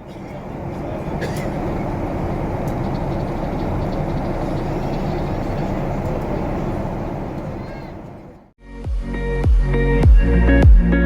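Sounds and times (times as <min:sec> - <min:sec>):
airliner cabin engine roar: 0:00.0 - 0:08.6.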